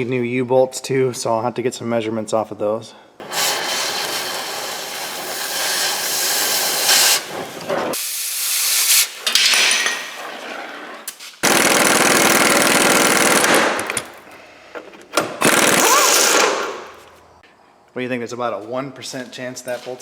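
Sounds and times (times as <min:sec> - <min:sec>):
air tool rattling hiss: 0:03.2 - 0:09.4.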